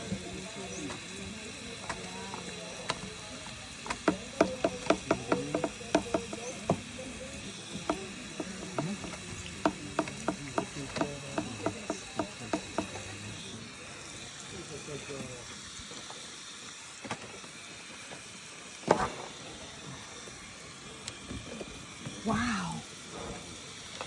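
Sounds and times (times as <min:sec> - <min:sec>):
elephant chewing sugar cane: 0:00.2 - 0:13.6.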